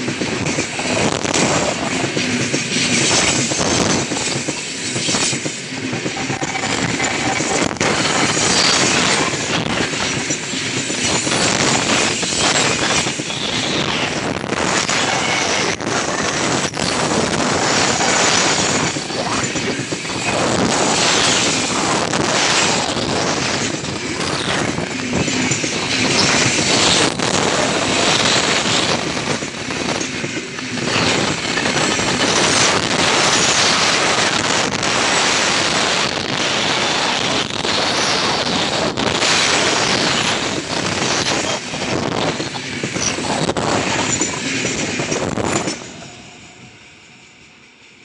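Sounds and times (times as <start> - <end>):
freight wagons rumbling on rails: 0.0 - 48.0
wheels clacking over rail joints: 15.0 - 46.2.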